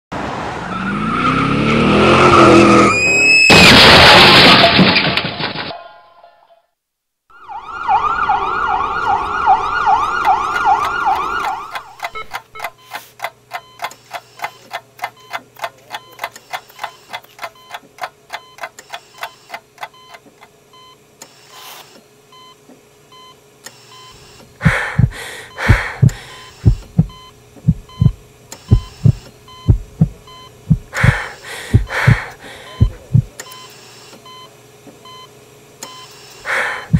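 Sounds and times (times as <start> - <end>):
tyres skidding: 0.2 - 3.1
loud crash: 3.4 - 5.8
wailing siren: 7.3 - 11.8
regular beeping: 11.4 - 20.2, 24.0 - 33.4
deep heartbeat thumps: 24.6 - 33.3
low hum: 24.6 - 33.3.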